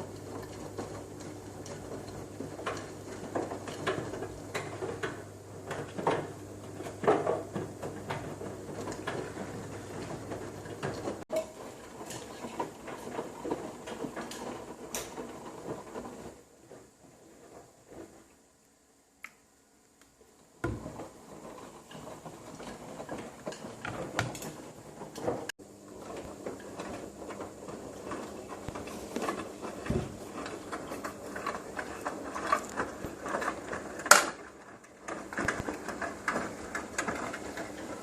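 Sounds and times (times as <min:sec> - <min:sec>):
washing machine drum tumbling: 0:00.0 - 0:18.2, 0:20.6 - 0:38.0.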